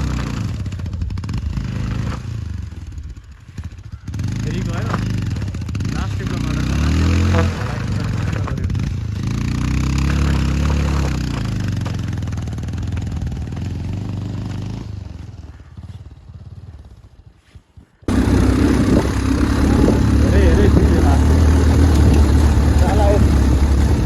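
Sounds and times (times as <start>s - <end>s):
motorcycle engine revving: 0.0s - 17.3s, 18.1s - 24.0s.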